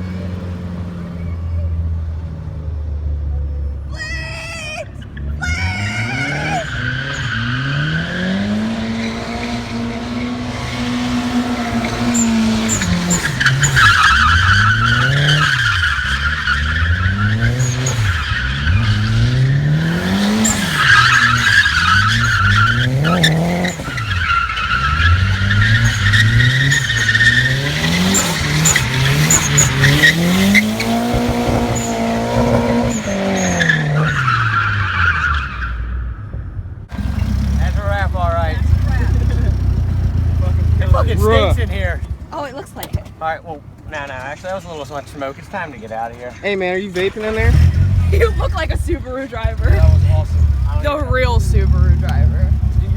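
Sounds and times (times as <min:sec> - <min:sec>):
tyres squealing: 0:03.4 - 0:36.0, 0:37.0 - 0:52.9
car engine revving hard: 0:05.1 - 0:35.7, 0:36.9 - 0:42.4, 0:47.0 - 0:52.9.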